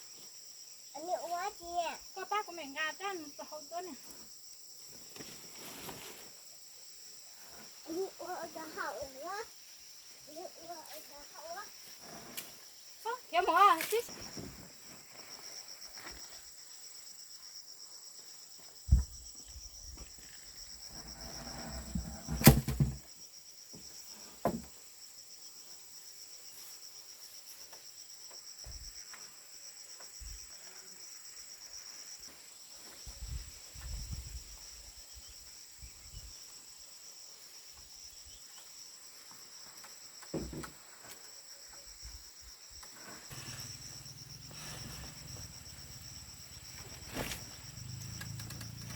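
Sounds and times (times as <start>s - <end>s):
high-pitched insect chorus: 0.0s - 48.9s
knocks and thumps: 21.0s - 23.1s.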